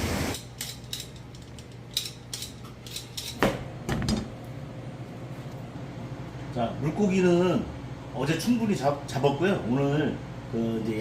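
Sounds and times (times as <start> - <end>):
utensils and cookware clinking: 0.3 - 3.5.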